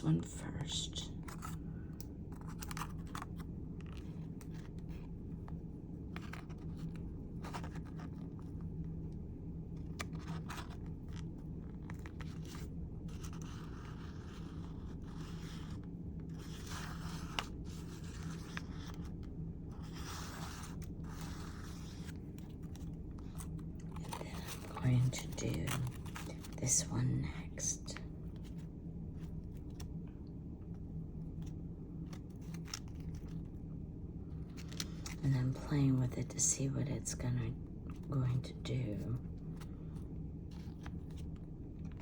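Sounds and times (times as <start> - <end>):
low hum: 0.0 - 42.0
paper scraping and rustling: 6.1 - 8.6, 9.8 - 26.6.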